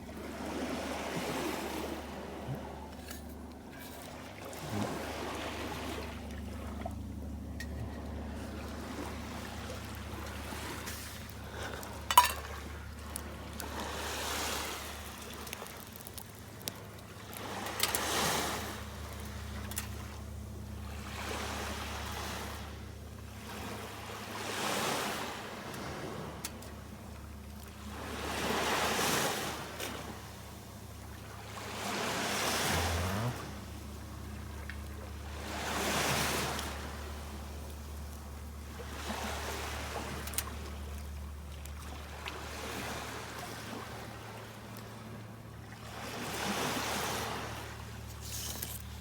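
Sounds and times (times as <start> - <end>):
small waves washing onto sand: 8.4 - 20.0, 31.4 - 33.7, 45.7 - 49.0.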